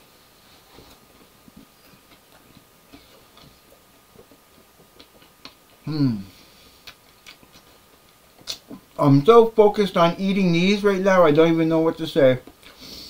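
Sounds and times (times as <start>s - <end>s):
quiet chewing with mouth clicks: 0.4s - 9.0s, 12.4s - 13.0s.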